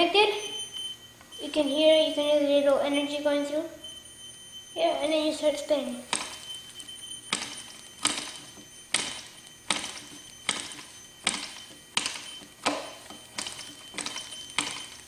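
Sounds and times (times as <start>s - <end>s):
faint high whine: 0.0s - 15.0s.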